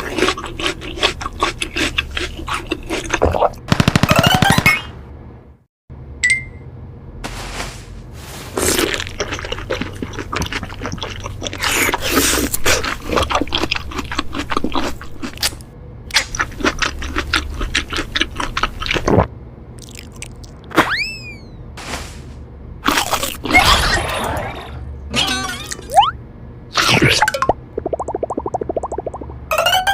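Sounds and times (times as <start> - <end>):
crunchy food being chewed: 0.0 - 3.6, 8.5 - 20.7, 22.8 - 23.5.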